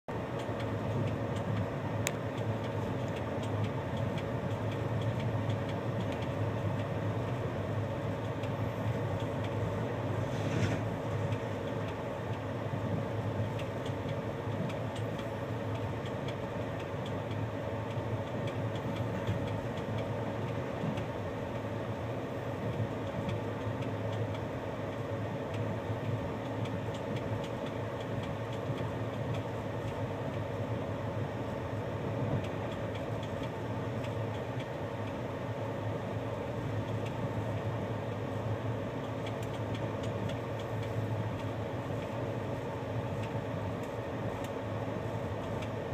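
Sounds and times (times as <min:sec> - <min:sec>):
train wheels rumbling on rails: 0:00.6 - 0:30.6.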